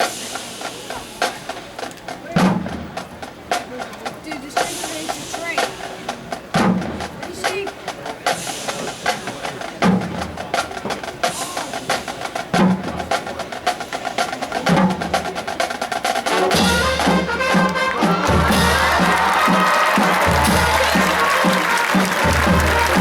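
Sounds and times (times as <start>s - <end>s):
drumline rapid drum strikes: 0.0s - 23.0s
band horns sustained chords: 16.3s - 23.0s.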